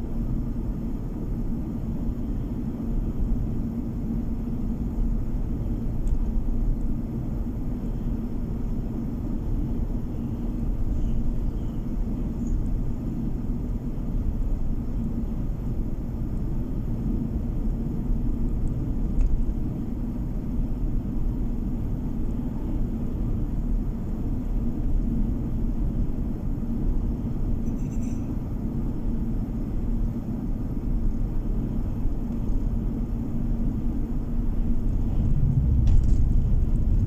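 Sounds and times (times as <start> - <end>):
car interior road rumble: 28.9 - 37.0.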